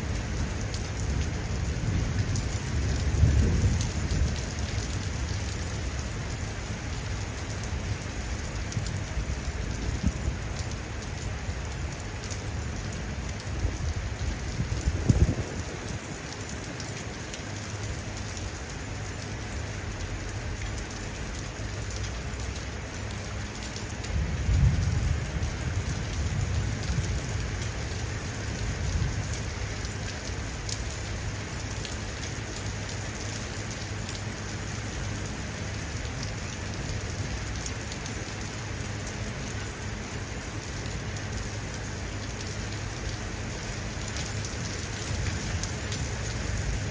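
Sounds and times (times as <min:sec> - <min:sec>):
rain splashing on surfaces: 0:00.0 - 0:46.9
thunder rumbling: 0:00.4 - 0:05.6, 0:13.6 - 0:16.3, 0:24.1 - 0:29.6.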